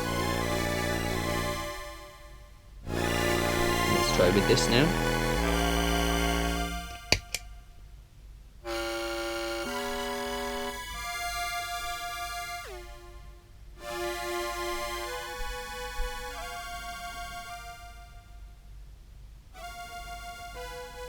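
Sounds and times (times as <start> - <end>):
synth-processed clarinet held notes: 0.0 - 2.2, 2.8 - 7.1.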